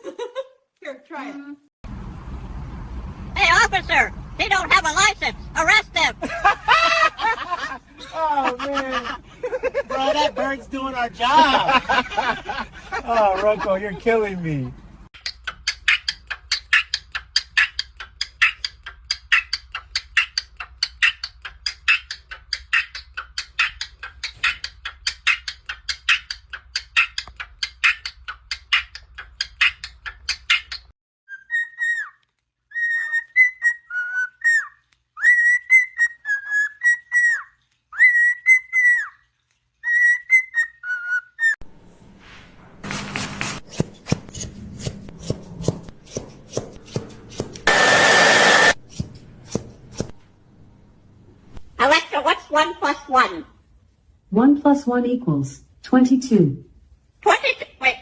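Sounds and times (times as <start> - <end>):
low hum: 1.8 - 15.1
parrot whistling a tune: 28.8 - 39.2, 39.8 - 41.6
rough scraping noise: 41.7 - 50.2.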